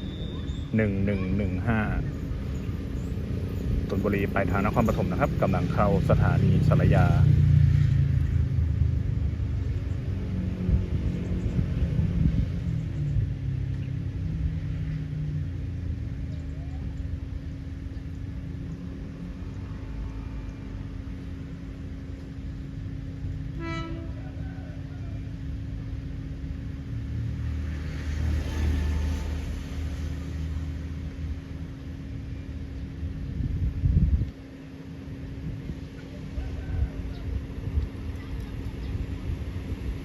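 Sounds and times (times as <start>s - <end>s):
diesel railcar rumbling: 0.0s - 40.0s
train horn toot: 23.4s - 25.2s.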